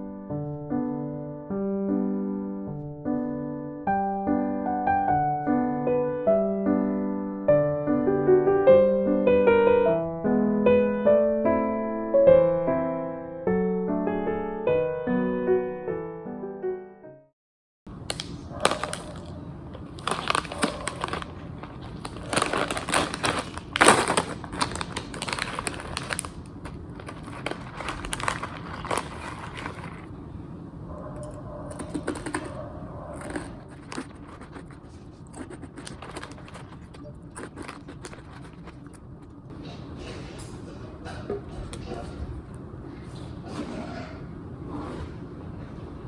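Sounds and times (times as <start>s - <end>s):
rustling and crinkling: 18.1s - 30.2s, 31.1s - 40.4s.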